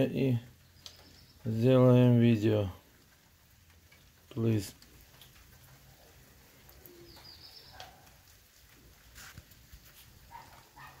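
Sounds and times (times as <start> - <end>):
faint bird call: 6.7 - 8.1.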